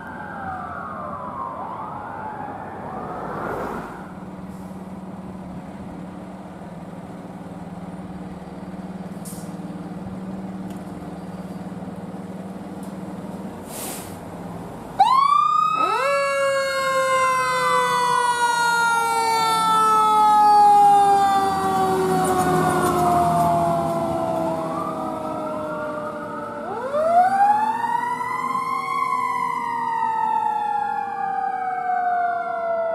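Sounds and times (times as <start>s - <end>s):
emergency siren wailing: 0.0s - 4.6s, 14.9s - 32.9s
street noise: 0.0s - 32.9s
vehicle engine hum: 0.0s - 32.9s.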